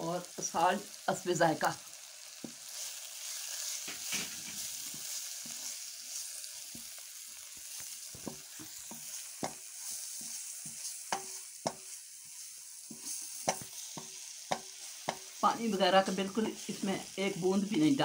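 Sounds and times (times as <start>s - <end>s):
food sizzling in hot oil: 0.0s - 18.0s
spatula stirring and scraping: 2.2s - 15.4s
spatula knocking against pan: 8.2s - 9.7s, 10.7s - 11.9s, 12.9s - 15.3s.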